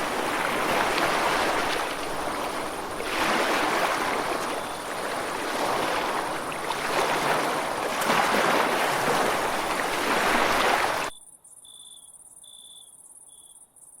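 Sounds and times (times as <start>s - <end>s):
ocean surf washing ashore: 0.0s - 11.1s.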